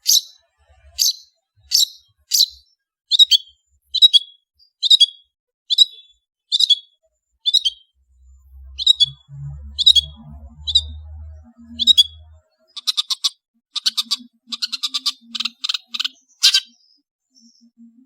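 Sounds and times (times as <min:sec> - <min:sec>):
faint low hum: 0:07.9 - 0:12.6.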